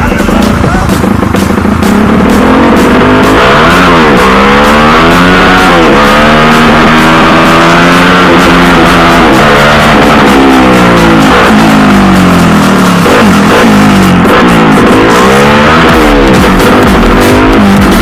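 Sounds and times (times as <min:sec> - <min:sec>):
loud music with steady beat: 0:00.0 - 0:18.0
motorcycle engine revving: 0:00.0 - 0:18.0.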